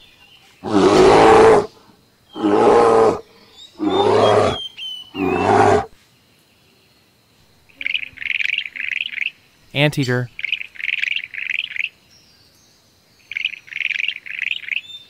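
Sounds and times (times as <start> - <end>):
bear roaring: 0.6 - 6.0.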